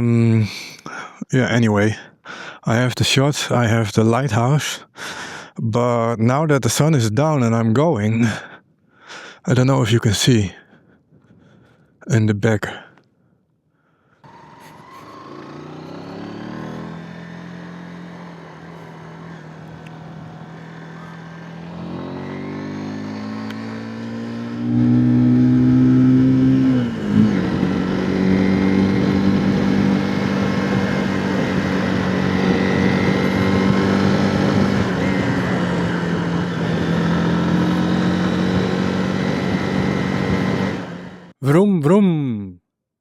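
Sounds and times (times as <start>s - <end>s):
motorcycle engine accelerating: 14.2s - 41.3s.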